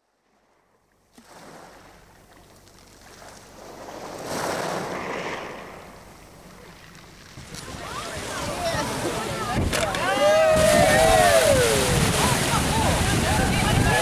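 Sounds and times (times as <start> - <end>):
sea water rushing and splashing: 0.3 - 14.0
wind on microphone: 7.3 - 14.0.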